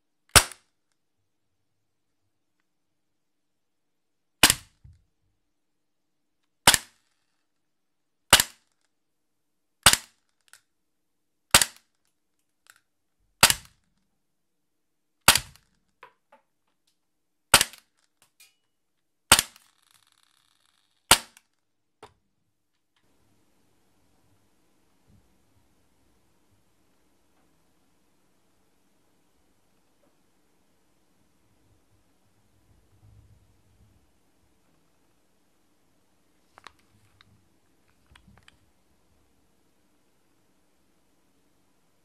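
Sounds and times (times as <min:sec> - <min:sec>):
airsoft pistol shots: 0:00.3 - 0:00.6, 0:04.4 - 0:04.8, 0:06.7 - 0:07.0, 0:08.3 - 0:08.6, 0:09.8 - 0:10.1, 0:11.5 - 0:11.8, 0:13.4 - 0:13.7, 0:15.3 - 0:15.6, 0:17.5 - 0:17.8, 0:19.3 - 0:19.8, 0:21.1 - 0:21.4.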